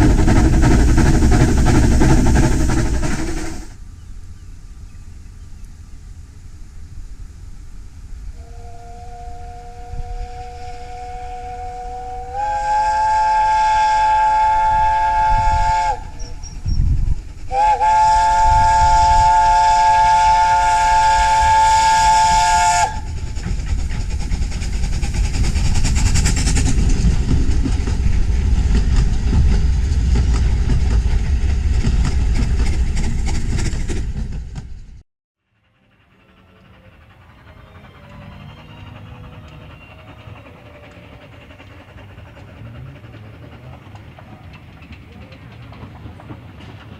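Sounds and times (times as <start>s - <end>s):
train running rumble: 0.0s - 46.9s
steam locomotive whistle: 8.3s - 16.6s, 17.5s - 23.2s, 35.7s - 41.7s.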